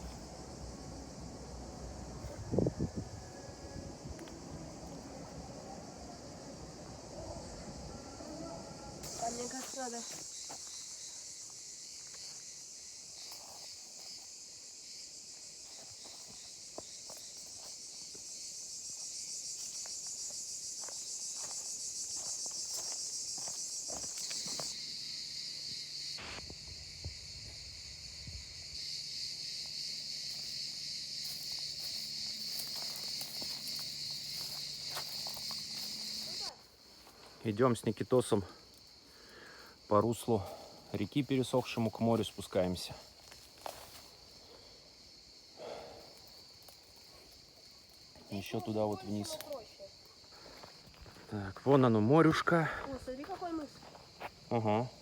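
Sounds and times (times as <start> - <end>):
shrill insect chorus: 0.0 - 55.0
footsteps: 20.8 - 24.8, 31.2 - 37.3, 52.8 - 54.4.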